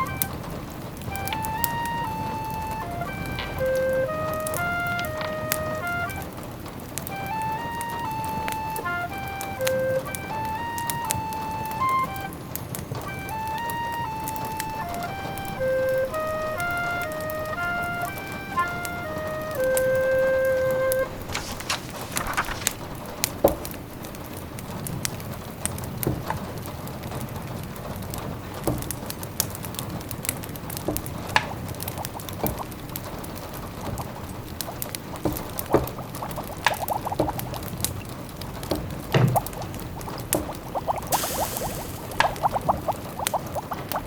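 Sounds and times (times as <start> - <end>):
soft steady hiss: 0.0 - 44.0
wood fire crackling: 0.0 - 44.0.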